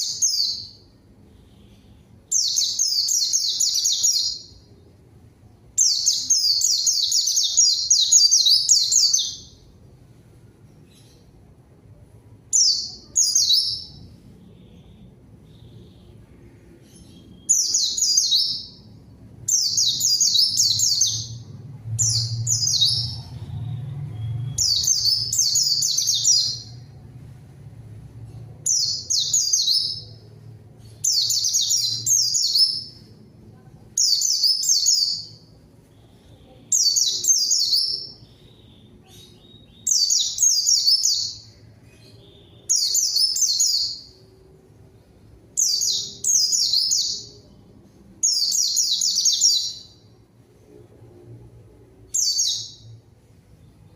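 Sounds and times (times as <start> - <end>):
bird twittering high chirps: 0.0 - 4.8, 5.8 - 9.7, 12.5 - 26.9, 28.6 - 33.1, 34.0 - 44.2, 45.6 - 47.6, 52.1 - 53.0.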